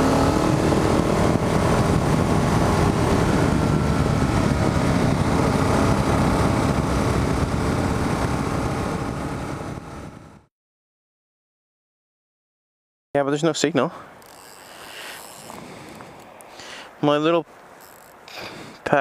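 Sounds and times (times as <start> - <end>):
motorcycle engine riding: 0.0 - 10.5, 14.1 - 16.8
wind rush on microphone: 0.0 - 10.5, 15.1 - 16.3.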